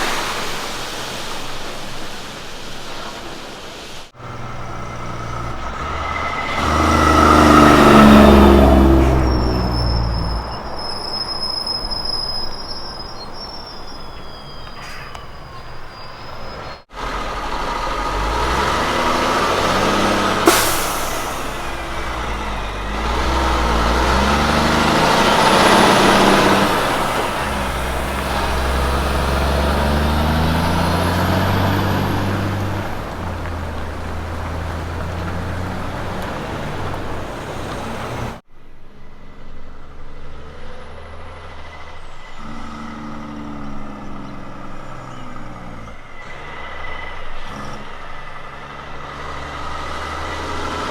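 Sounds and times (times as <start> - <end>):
sharp hiss or crack: 0.0 - 4.1, 19.9 - 30.3
truck engine running quietly: 0.0 - 39.1
diesel truck engine changing gears: 0.0 - 50.9
tyre and trailer noise: 0.0 - 50.9.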